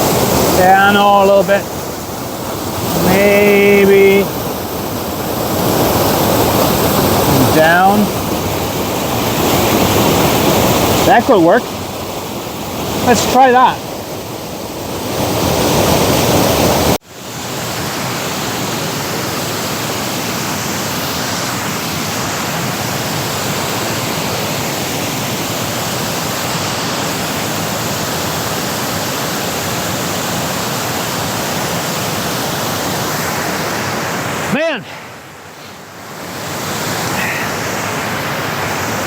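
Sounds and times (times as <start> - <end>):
waterfall roaring: 0.0 - 39.0.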